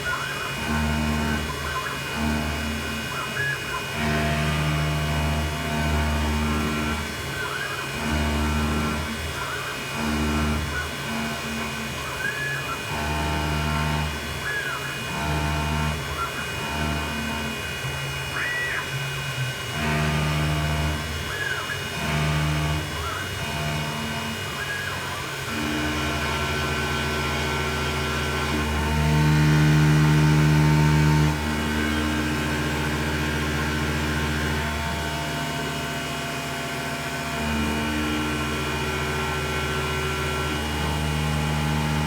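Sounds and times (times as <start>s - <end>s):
deep hum of axis drives: 0.0s - 42.0s
milling machine spindle running: 0.0s - 42.0s
short rising and falling whines: 19.8s - 42.0s.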